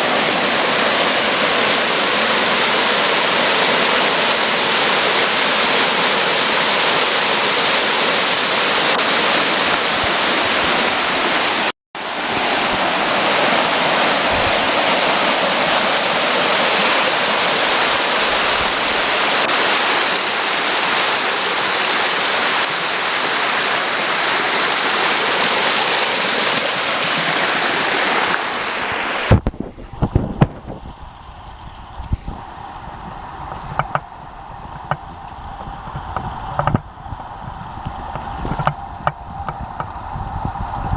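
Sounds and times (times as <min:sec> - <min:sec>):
waterfall rushing: 0:00.0 - 0:29.4, 0:30.9 - 0:40.2
scattered knocks and clicks: 0:33.8 - 0:34.1.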